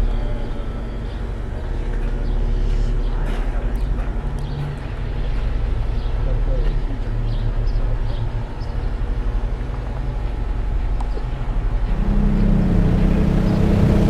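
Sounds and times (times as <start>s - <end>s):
vehicle engine humming: 3.8s - 14.0s
deep steady tone: 11.4s - 14.0s.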